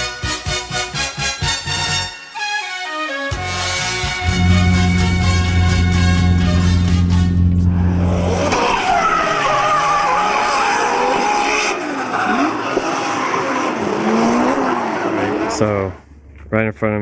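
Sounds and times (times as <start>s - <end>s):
music: 0.0s - 7.7s
low hum: 3.4s - 11.7s
car tyres squealing: 4.2s - 16.0s.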